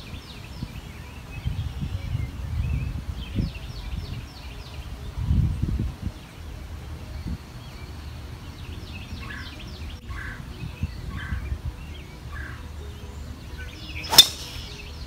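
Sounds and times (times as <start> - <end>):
birds chirping: 0.0 - 15.0
harsh bird calls: 0.0 - 15.0
wind rumble on microphone: 0.0 - 15.0.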